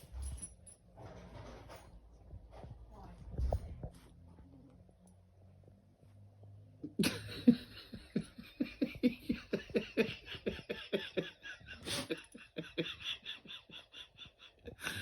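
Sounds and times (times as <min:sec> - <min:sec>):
person laughing hard: 0:06.9 - 0:15.0.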